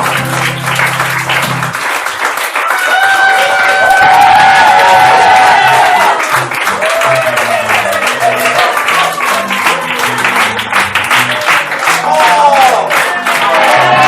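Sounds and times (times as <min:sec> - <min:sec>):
live band playing: 0:00.0 - 0:01.8
audience applauding and cheering: 0:00.0 - 0:14.0.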